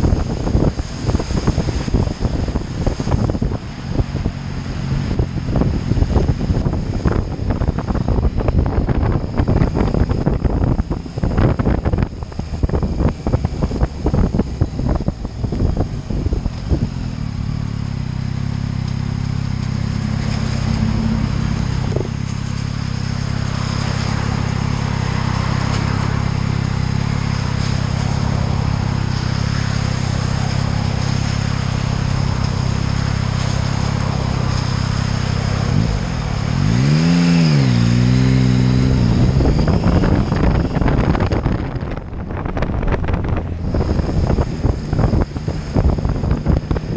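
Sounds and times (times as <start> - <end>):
motorcycle engine running: 0.0 - 46.9
wind buffeting microphone: 0.0 - 46.9.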